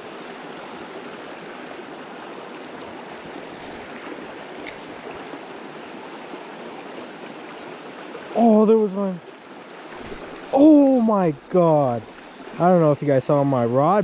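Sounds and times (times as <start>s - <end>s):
stream running over rocks: 0.0s - 14.0s.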